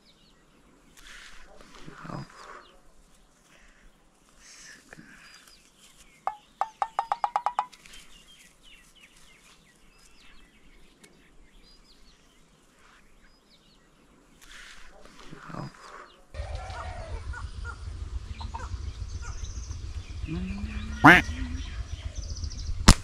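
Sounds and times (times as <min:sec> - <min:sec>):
bird call with sharp notes: 0:16.4 - 0:23.0.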